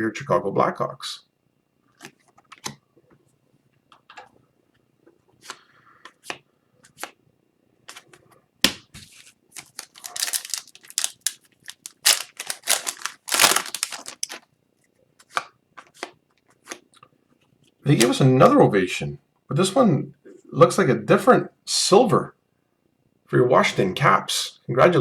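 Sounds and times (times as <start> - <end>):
foil wrapper tearing and crumpling: 9.6 - 14.4.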